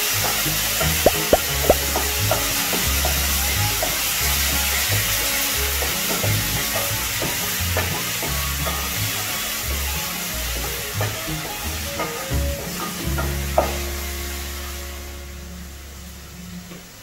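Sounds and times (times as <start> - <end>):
background music bass beat: 1.0 - 4.4
paste sizzling in oil: 1.0 - 10.4.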